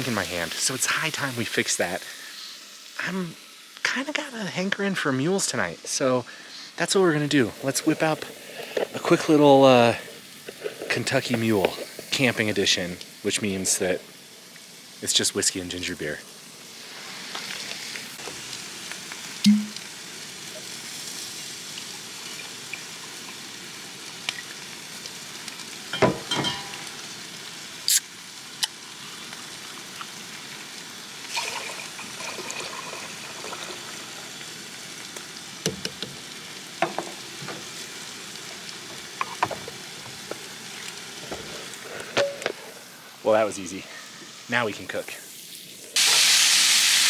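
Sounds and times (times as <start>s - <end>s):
grill sizzling: 0.0s - 47.0s
clinks and clicks of drink mixing: 26.0s - 27.0s, 31.3s - 34.0s, 38.9s - 40.4s.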